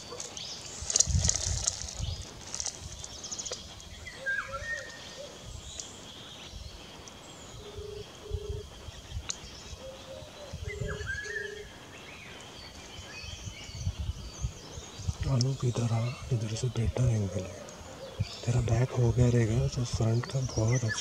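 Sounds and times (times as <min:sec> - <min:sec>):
bird whistled call: 0:03.4 - 0:05.4, 0:09.3 - 0:11.7
low hoots: 0:15.2 - 0:21.0.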